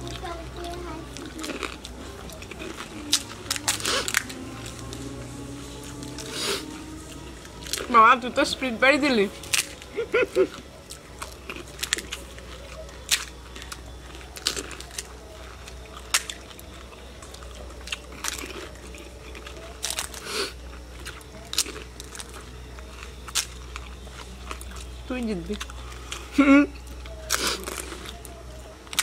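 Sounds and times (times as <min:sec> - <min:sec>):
crisp shells crunching: 0:00.0 - 0:29.0
wet chewing: 0:00.0 - 0:29.0.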